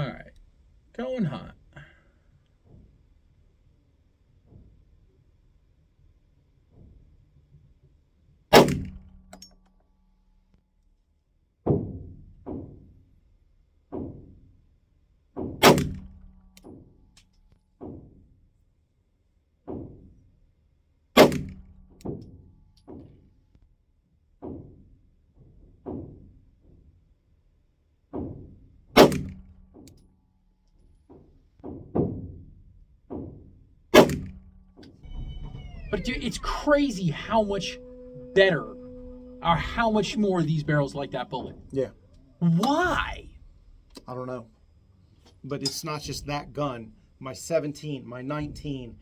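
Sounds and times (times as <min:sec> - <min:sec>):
pistol shots: 0:29.0 - 0:29.4, 0:34.0 - 0:34.3.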